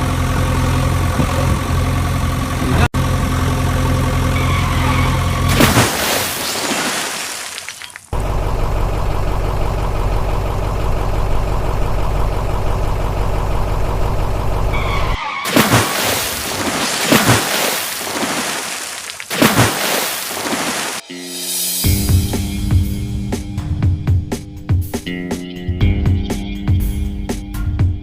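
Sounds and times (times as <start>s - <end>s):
vehicle engine humming: 0.0s - 6.4s, 7.8s - 21.0s.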